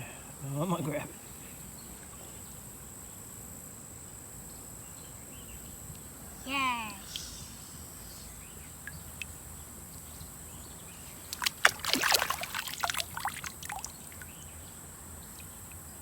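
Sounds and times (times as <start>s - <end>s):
high insect drone: 0.0s - 16.0s
water splashing: 11.1s - 14.3s.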